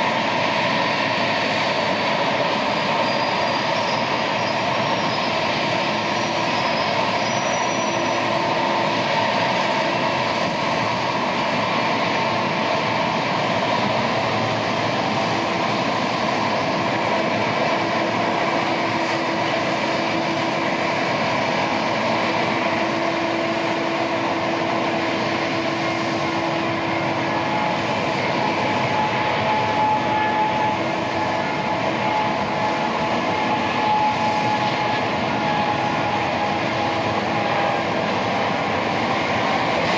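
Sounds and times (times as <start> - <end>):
jet engines running with whine: 0.0 - 39.9.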